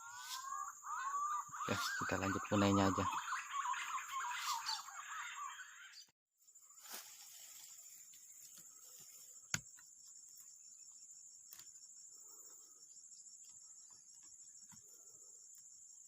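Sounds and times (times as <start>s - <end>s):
birds chattering: 0.0s - 6.1s.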